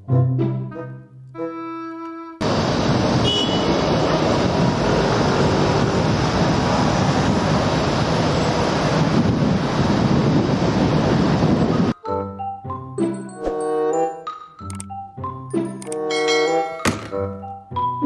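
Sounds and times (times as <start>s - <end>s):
moving vehicle rushing noise: 2.4s - 11.1s
wind on microphone: 3.7s - 12.0s
chiming melody: 12.0s - 17.3s.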